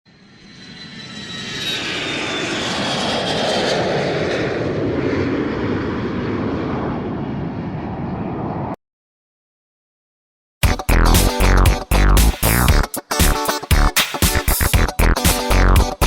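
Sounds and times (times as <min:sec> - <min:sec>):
aircraft engine passing by: 0:00.1 - 0:08.8.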